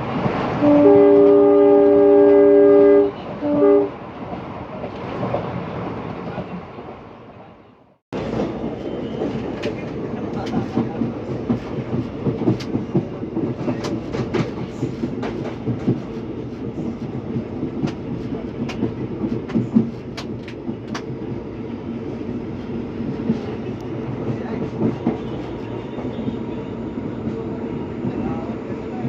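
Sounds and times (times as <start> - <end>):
train rumbling on rails: 0.0 - 29.0
train wheels clicking: 8.2 - 21.4.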